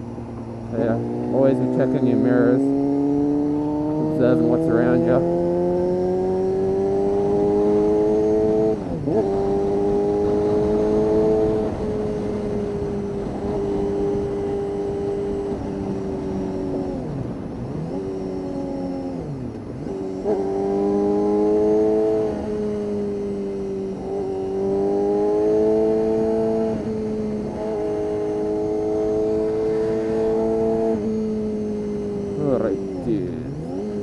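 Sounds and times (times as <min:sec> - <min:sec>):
motorcycle engine revving high: 0:00.6 - 0:34.0.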